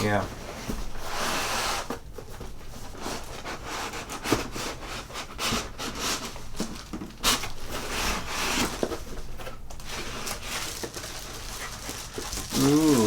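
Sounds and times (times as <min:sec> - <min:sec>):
packaging rustling and scraping: 0:02.9 - 0:13.0.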